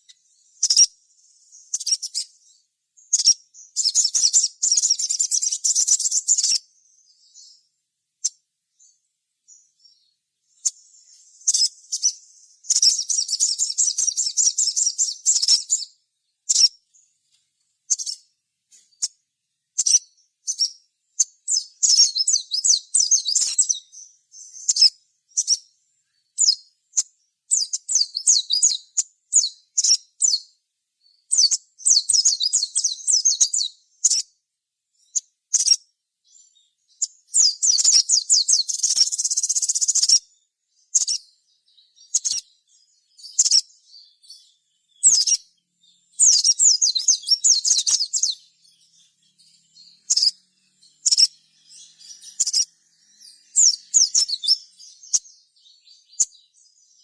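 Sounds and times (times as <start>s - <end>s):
bird chattering trills: 37.4s - 40.2s, 46.2s - 56.4s.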